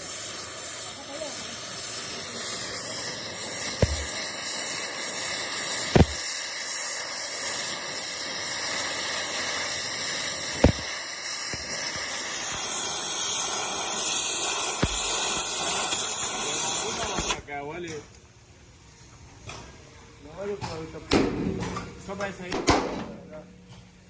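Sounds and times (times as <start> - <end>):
steady hiss: 0.0 - 21.1.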